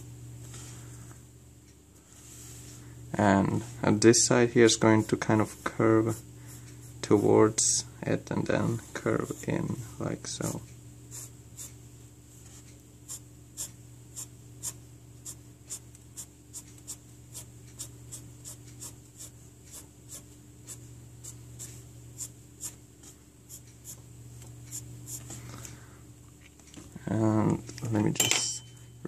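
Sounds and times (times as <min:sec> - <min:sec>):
steady low hum: 0:00.0 - 0:29.0
pencil scratching on paper: 0:11.1 - 0:11.8, 0:12.5 - 0:24.0.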